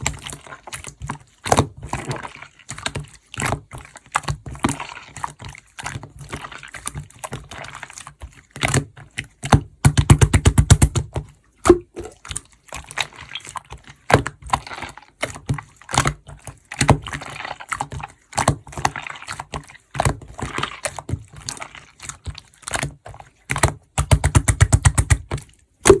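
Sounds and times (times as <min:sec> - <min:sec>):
slime clicking and popping: 0:23.5 - 0:26.0.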